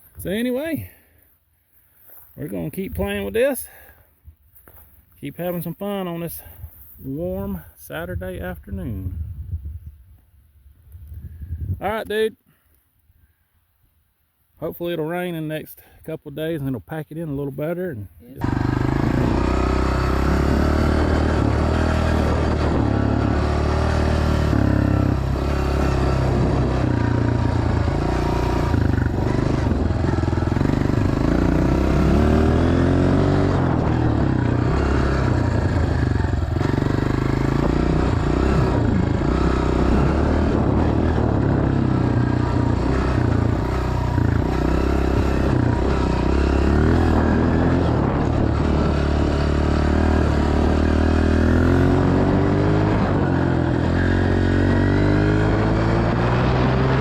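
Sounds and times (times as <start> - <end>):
dirt bike engine revving: 18.4 - 57.0.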